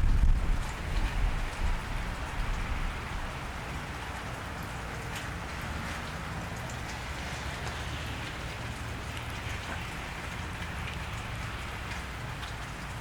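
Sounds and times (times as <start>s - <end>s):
rain on wet pavement: 0.0s - 13.0s
small drips ticking: 0.2s - 13.0s.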